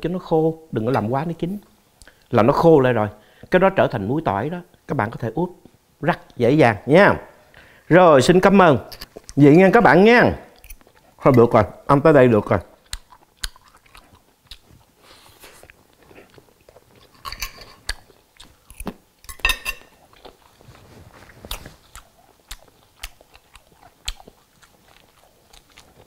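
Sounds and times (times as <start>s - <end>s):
person chewing food: 10.5s - 11.4s, 12.7s - 26.0s
wet mouth clicks and smacks: 12.8s - 14.7s, 17.0s - 19.0s, 21.6s - 26.0s.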